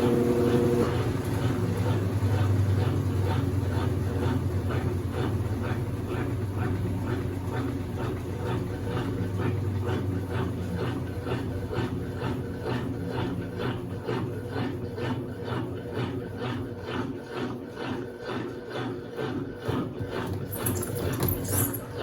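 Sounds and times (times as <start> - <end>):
low motor hum: 0.0 - 17.0
washing machine churning water: 0.0 - 22.0.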